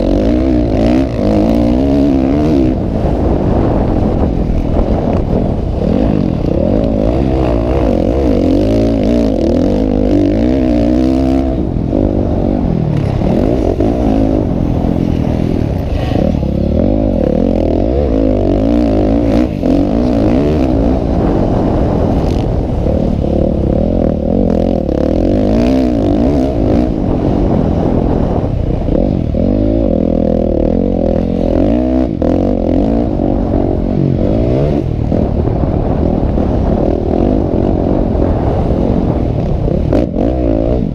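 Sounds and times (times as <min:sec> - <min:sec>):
motocross motorcycles revving: 0:00.0 - 0:40.9.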